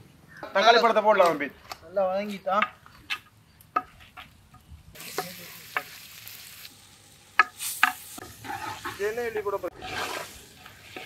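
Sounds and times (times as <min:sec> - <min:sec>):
shallots frying in oil: 0:04.4 - 0:11.0.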